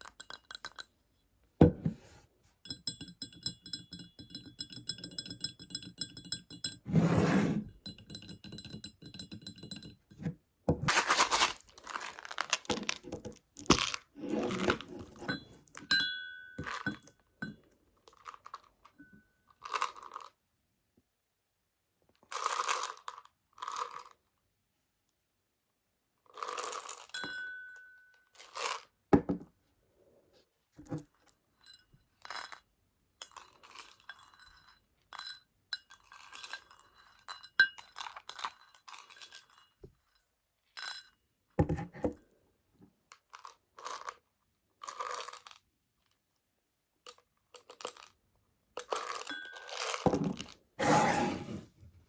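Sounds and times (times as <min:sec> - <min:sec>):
chocolate pellets rattling in plastic case: 0:10.9 - 0:15.0, 0:44.8 - 0:45.6.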